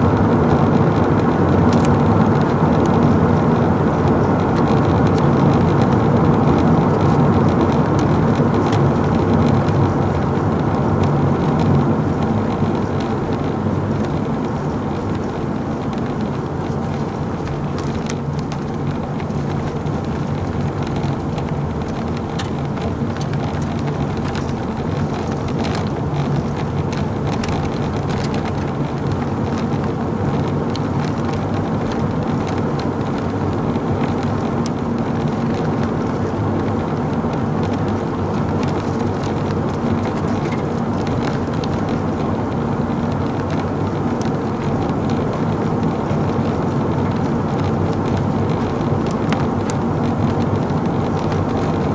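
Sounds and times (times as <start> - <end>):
road noise: 0.0 - 51.9
vehicle engine drone: 0.0 - 51.9.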